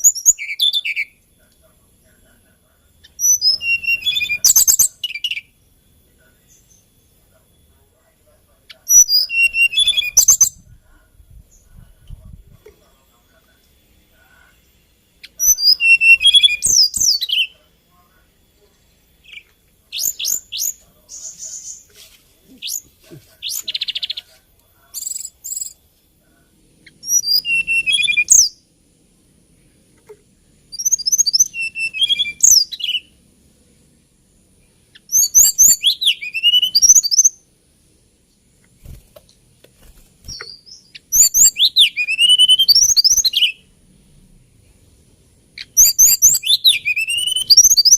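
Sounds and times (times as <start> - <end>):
bird singing whistled phrases: 0.0 - 1.2, 3.0 - 5.5, 8.9 - 10.6, 15.2 - 17.6, 19.2 - 21.8, 27.0 - 28.6, 30.7 - 33.1, 35.0 - 37.4, 40.3 - 43.6, 45.6 - 47.9.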